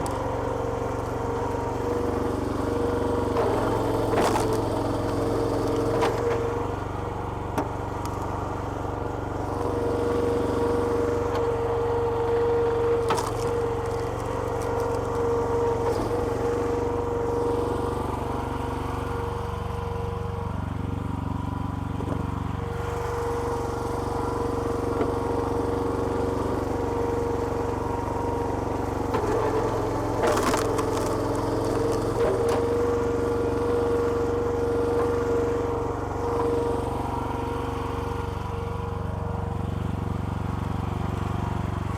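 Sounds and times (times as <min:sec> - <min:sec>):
small petrol engine running: 0:00.0 - 0:41.9
wood splitting cracks: 0:03.1 - 0:06.8, 0:29.1 - 0:33.0.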